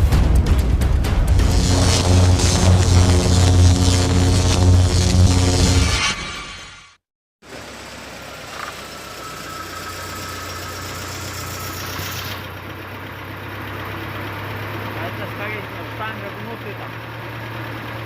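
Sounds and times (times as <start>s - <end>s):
intro music: 0.0s - 6.9s
car engine idling rough with knock: 7.5s - 18.0s.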